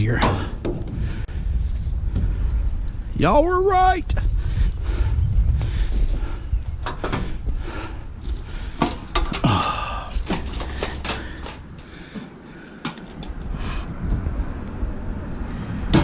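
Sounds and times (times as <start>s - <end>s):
metal scrap clanking and knocking: 8.8s - 11.9s.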